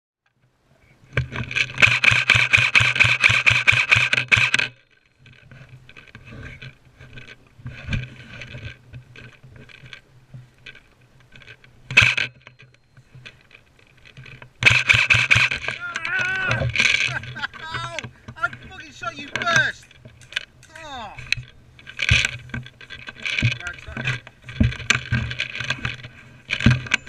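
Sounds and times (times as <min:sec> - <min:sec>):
quiet scattered clicks: 0:00.3 - 0:27.0
airsoft gun rapid shots: 0:01.8 - 0:04.6, 0:14.6 - 0:15.6.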